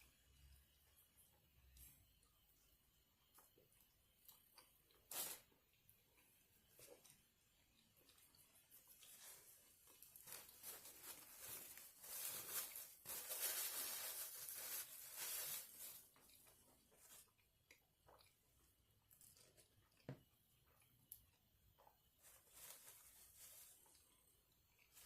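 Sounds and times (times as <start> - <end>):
chewing crunchy food: 5.7 - 10.6, 16.0 - 22.2.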